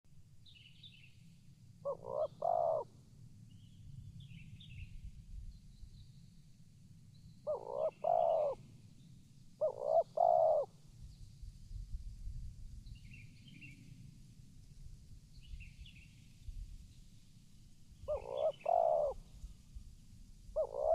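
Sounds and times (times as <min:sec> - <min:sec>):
dove cooing: 0:01.8 - 0:02.9, 0:07.5 - 0:08.6, 0:09.6 - 0:10.7, 0:18.1 - 0:19.2, 0:20.6 - 0:20.9
small birds chirping: 0:01.9 - 0:02.8, 0:07.2 - 0:11.2, 0:18.0 - 0:19.5, 0:20.6 - 0:20.9.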